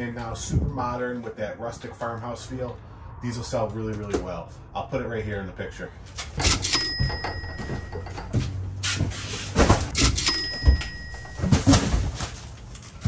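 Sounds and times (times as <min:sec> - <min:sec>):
cardboard boxes thudding: 0:07.0 - 0:13.0.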